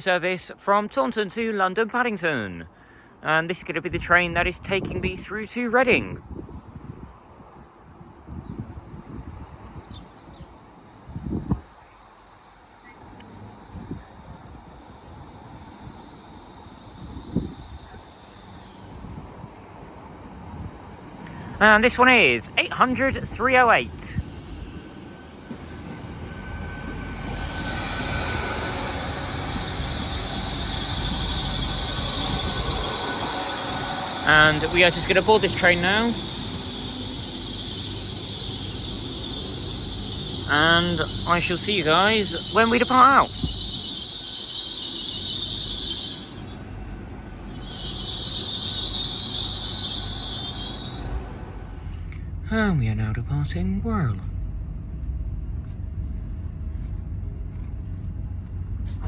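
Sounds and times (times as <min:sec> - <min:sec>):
train rumble: 0:00.0 - 0:59.0
brake squeal: 0:10.3 - 0:52.2.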